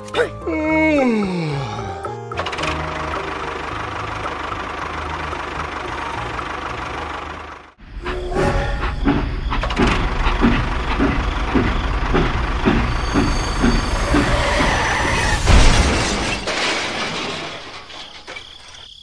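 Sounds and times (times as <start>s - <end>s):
engine chugging: 2.4s - 15.1s.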